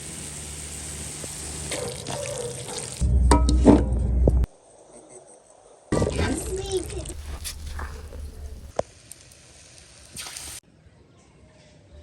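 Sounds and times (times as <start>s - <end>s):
low rumbling noise: 3.0s - 4.6s, 7.0s - 8.7s.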